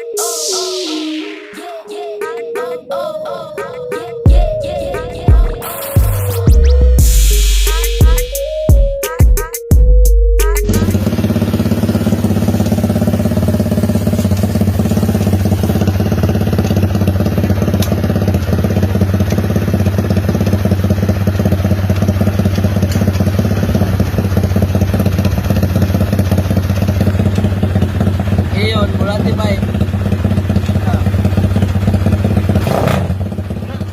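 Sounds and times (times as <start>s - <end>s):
motorcycle engine idling: 10.6s - 33.9s.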